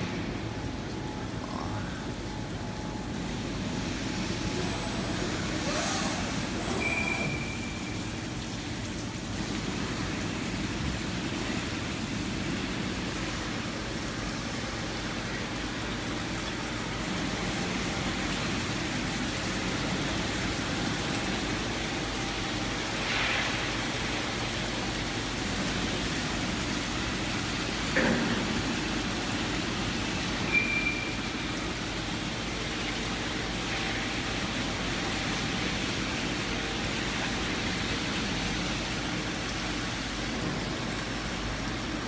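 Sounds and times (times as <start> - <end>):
drilling machine hiss: 4.6 - 8.2.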